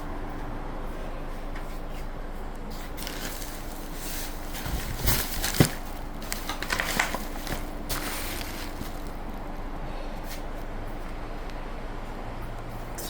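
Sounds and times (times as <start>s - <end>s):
steady low hum: 0.0s - 13.0s
packaging rustling and crackling: 2.8s - 9.5s.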